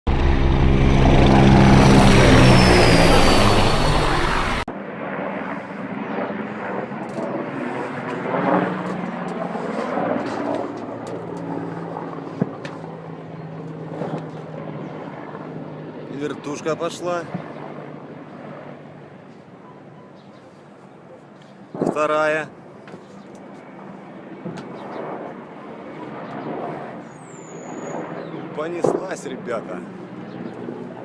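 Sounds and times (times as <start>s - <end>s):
distant engine drone: 0.1s - 20.1s
military aircraft engine whine: 0.1s - 31.0s.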